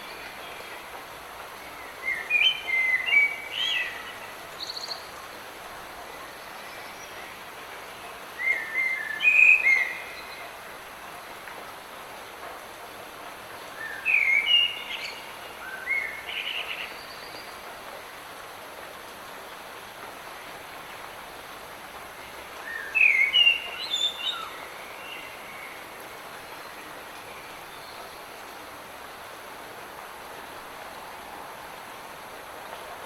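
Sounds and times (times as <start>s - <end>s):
light rain hiss: 0.0s - 33.0s
songbird singing: 1.5s - 5.5s, 6.1s - 10.6s, 13.6s - 17.6s, 22.6s - 28.7s.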